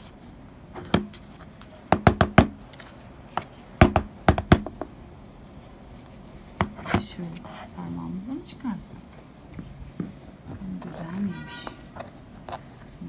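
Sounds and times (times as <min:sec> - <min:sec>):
knocking on hollow container: 0:01.9 - 0:02.6, 0:03.8 - 0:04.9.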